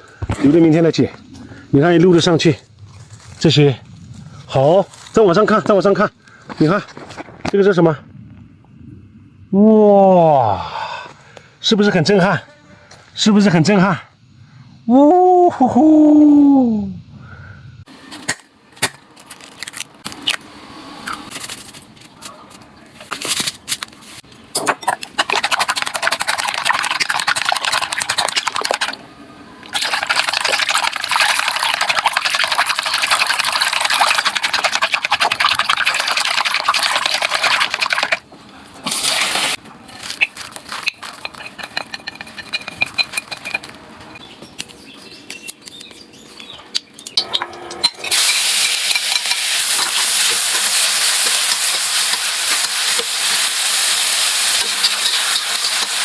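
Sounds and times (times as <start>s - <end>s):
steady hiss: 0.0s - 17.9s, 36.0s - 43.4s, 48.0s - 56.0s
utensils clicking and scraping: 39.9s - 43.8s
food sizzling in hot pan: 48.1s - 56.0s.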